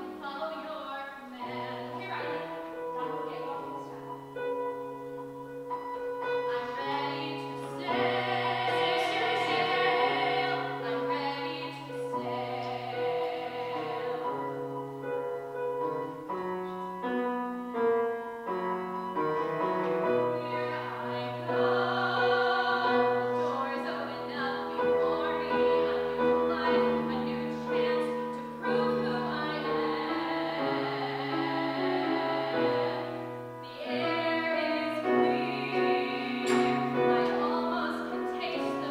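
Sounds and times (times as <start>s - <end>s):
piano chords: 0.0s - 38.9s
person singing with vibrato: 6.4s - 14.8s, 20.1s - 38.9s.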